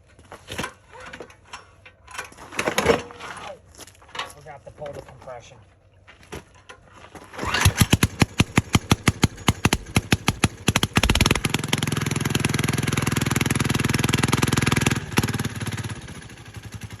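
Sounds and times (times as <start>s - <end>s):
small diesel engine chugging: 7.4s - 17.0s.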